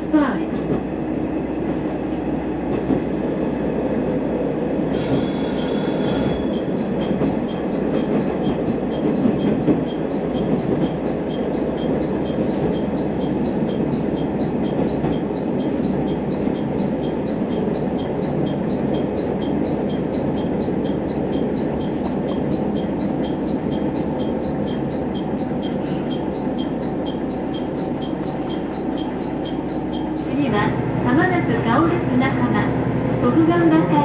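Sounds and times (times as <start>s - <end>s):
diesel railcar running: 0.0s - 34.0s
high-pitched wheel squeal: 4.9s - 7.1s
steady high ticking: 6.3s - 30.6s.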